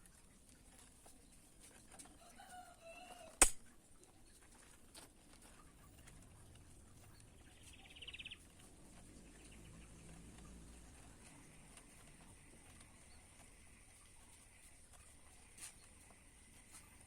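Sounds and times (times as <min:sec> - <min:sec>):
sharp click: 0:03.4 - 0:03.6.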